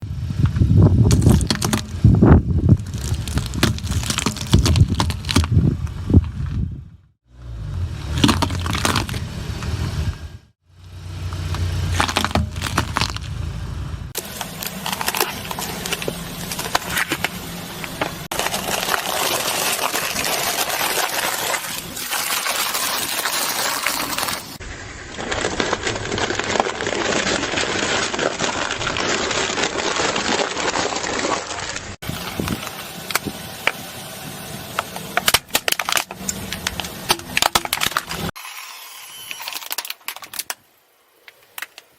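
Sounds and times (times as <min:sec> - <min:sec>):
low rumble of car: 0:00.0 - 0:18.9
car tyres crushing crunchy objects: 0:00.3 - 0:10.3, 0:10.9 - 0:38.4, 0:39.4 - 0:41.9.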